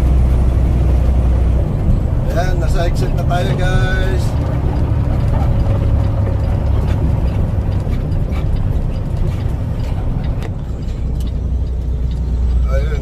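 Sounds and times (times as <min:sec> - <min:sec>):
road noise: 0:00.0 - 0:13.0
truck engine rumble: 0:00.0 - 0:13.0.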